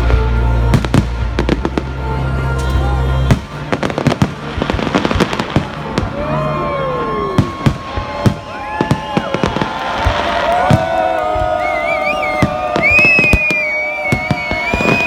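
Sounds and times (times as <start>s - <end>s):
bass-heavy music: 0.0s - 9.2s
fireworks banging: 3.3s - 6.4s, 7.3s - 15.0s
whistling fireworks: 3.3s - 15.0s.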